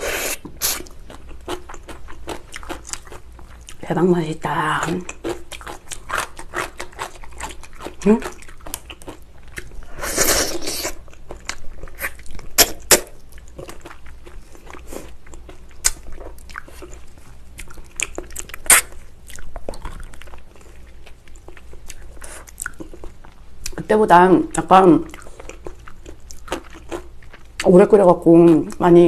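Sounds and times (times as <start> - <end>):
chewing and lip smacks: 0.6 - 3.8, 5.1 - 9.9, 10.9 - 23.8, 25.0 - 27.7
loud bite: 12.0 - 13.2.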